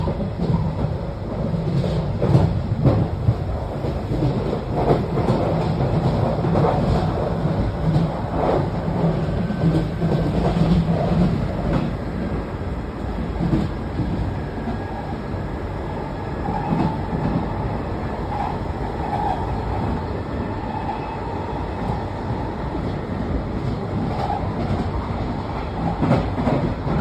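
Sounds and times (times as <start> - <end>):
wheels clicking on track: 0.0 - 20.0
train rumble and hum: 0.0 - 27.0.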